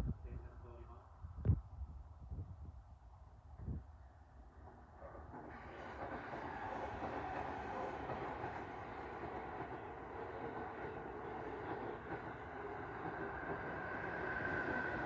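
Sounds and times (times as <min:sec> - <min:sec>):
electric train rumbling: 0:04.3 - 0:15.0.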